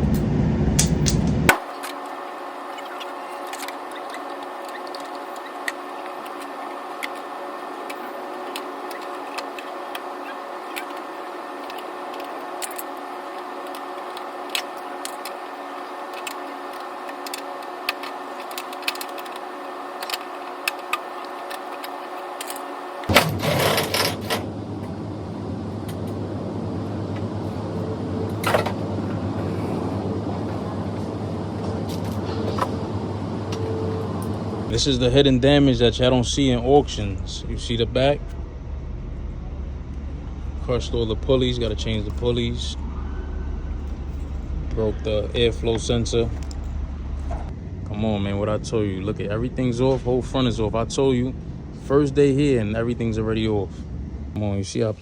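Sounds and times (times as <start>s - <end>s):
low steady rumble: 0.0s - 1.6s, 2.8s - 55.0s
mechanical hum: 0.0s - 55.0s.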